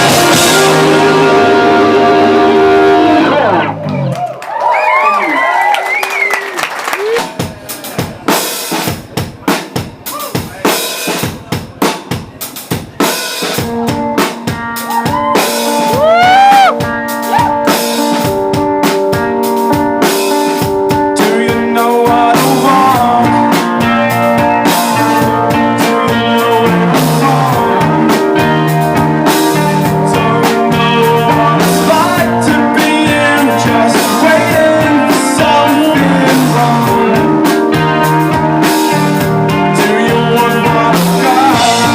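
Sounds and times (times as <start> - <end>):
drum kit playing: 0.0 - 4.1, 6.7 - 41.9
low bass line: 0.0 - 4.2, 21.2 - 41.9
electric guitar notes: 0.0 - 4.3, 13.7 - 41.9.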